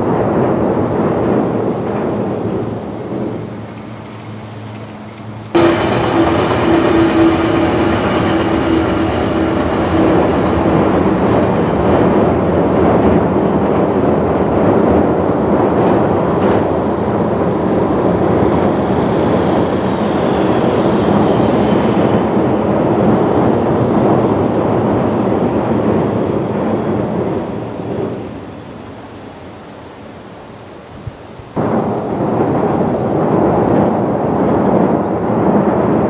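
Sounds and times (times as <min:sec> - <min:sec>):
train wheels rumbling on bridge: 0:00.0 - 0:30.4
faint high whines: 0:02.3 - 0:31.6
humming tone: 0:03.0 - 0:29.6.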